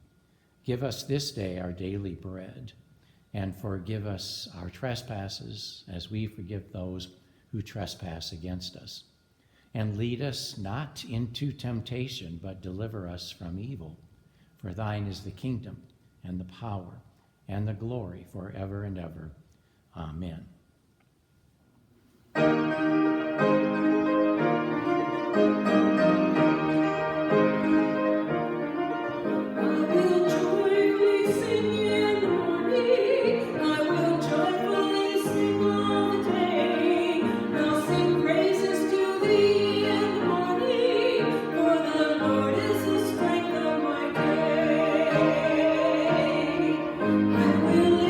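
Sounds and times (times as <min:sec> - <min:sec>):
piano chords: 0:22.3 - 0:48.0
person singing operatic-style: 0:29.2 - 0:48.0.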